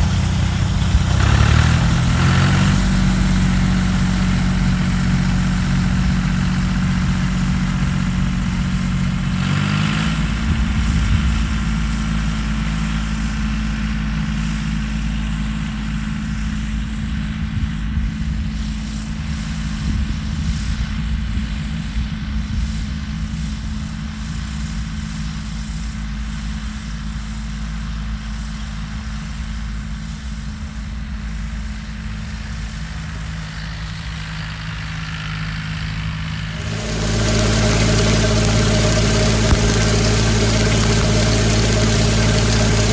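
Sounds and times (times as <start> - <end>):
tractor engine running: 36.5 - 42.9.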